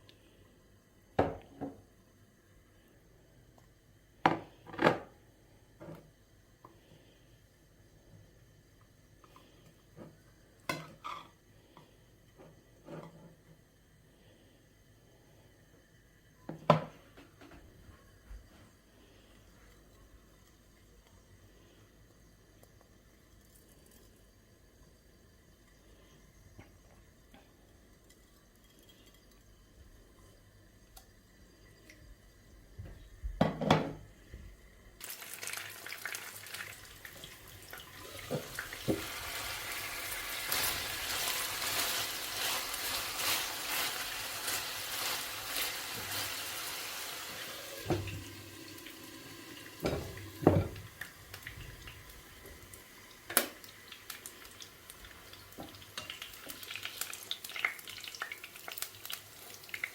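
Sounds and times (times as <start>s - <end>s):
pots and dishes clattering: 33.4s - 34.0s, 49.8s - 50.9s
tap running into a sink: 38.2s - 39.2s, 47.6s - 48.8s, 49.8s - 52.6s.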